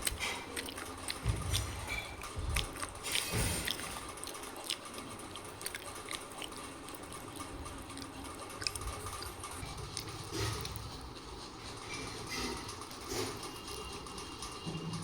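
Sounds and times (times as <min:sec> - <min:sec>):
wet mouth clicks: 0:00.0 - 0:01.7, 0:02.5 - 0:10.9
crunchy chewing: 0:00.0 - 0:14.2.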